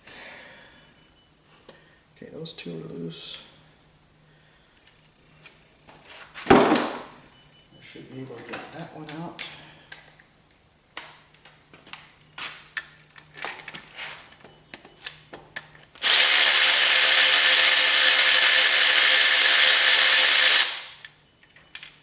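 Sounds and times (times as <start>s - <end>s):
handheld power tool running: 16.0s - 21.0s.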